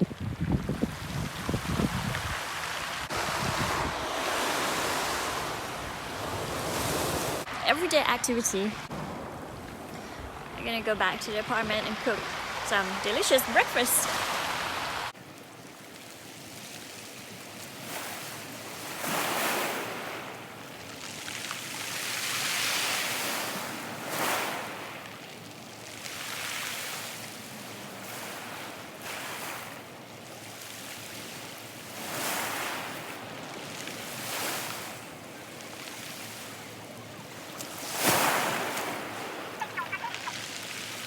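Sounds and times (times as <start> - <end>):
wind buffeting microphone: 0.0 - 7.5
rushing water: 0.0 - 41.0.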